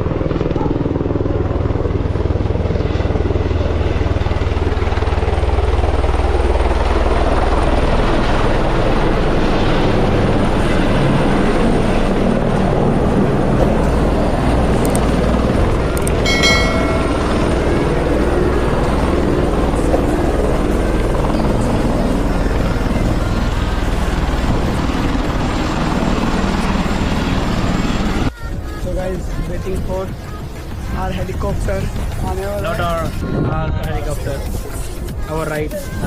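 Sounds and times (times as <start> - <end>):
helicopter rotor and engine: 0.0 - 36.0
high-pitched tone: 16.2 - 18.3.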